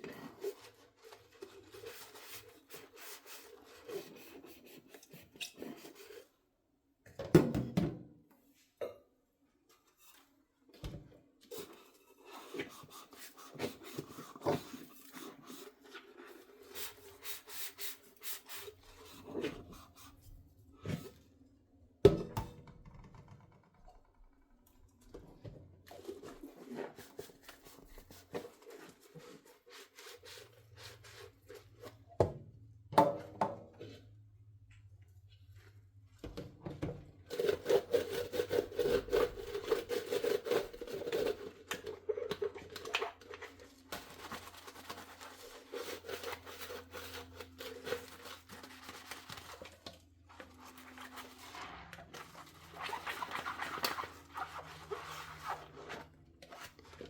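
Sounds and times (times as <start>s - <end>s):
sponge scrubbing dishes: 0.0s - 6.3s, 11.5s - 21.2s, 25.3s - 32.1s, 37.3s - 57.0s.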